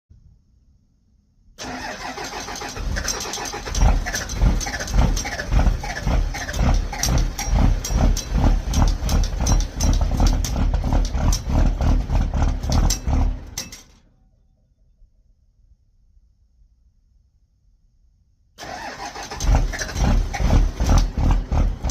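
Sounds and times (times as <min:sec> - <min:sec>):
diesel engine starting and running: 0:01.6 - 0:15.0, 0:18.6 - 0:21.9.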